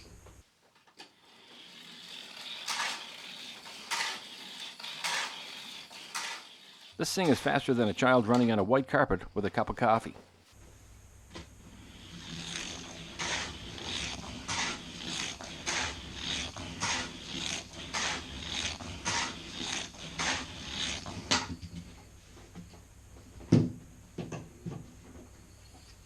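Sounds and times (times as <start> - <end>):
toy car running on plastic track: 0.8 - 8.6, 12.0 - 21.8.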